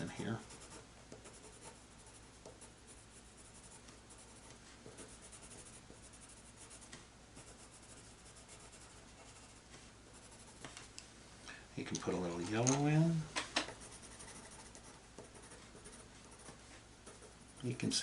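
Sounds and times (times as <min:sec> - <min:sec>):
pencil scratching on paper: 0:00.4 - 0:10.6, 0:13.7 - 0:17.4.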